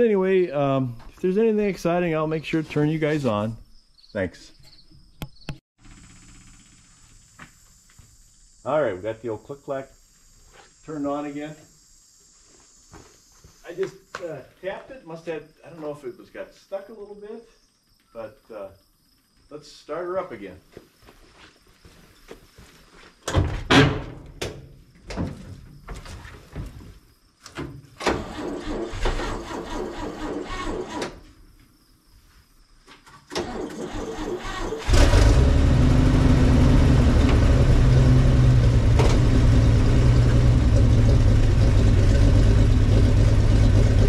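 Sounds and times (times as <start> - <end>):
engine starter cranking: 28.0 - 31.2, 33.3 - 36.0
truck engine running: 34.9 - 44.0.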